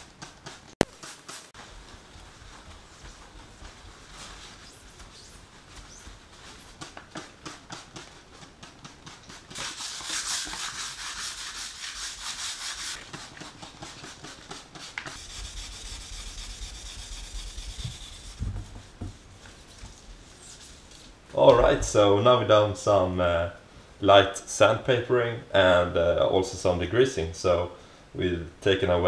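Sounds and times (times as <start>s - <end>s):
sandpaper rubbing on metal: 0.0s - 21.0s
handling noise with knocks: 17.8s - 20.1s.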